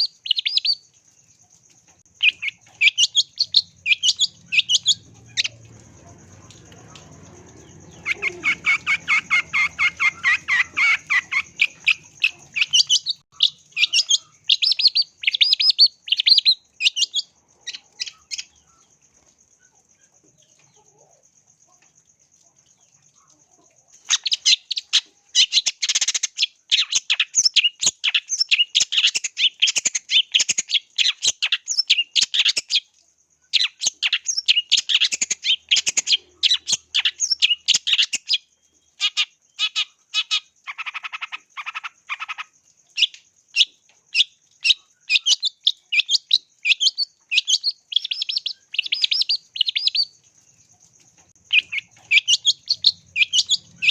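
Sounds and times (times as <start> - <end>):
bird singing high chirps: 0.0 - 0.8, 2.2 - 18.9, 33.6 - 50.2, 51.2 - 53.9.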